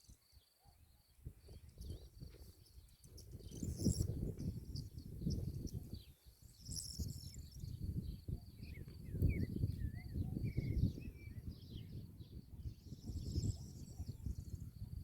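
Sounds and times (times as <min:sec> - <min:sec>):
wind buffeting microphone: 0:01.2 - 0:15.0.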